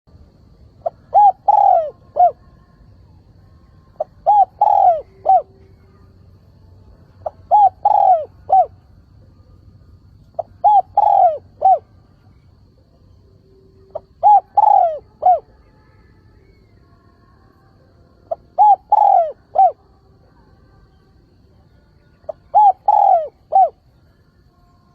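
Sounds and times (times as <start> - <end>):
dove cooing: 0.8 - 2.6, 3.9 - 6.1, 7.2 - 8.8, 10.3 - 12.0, 13.8 - 15.6, 18.3 - 19.8, 22.3 - 23.8.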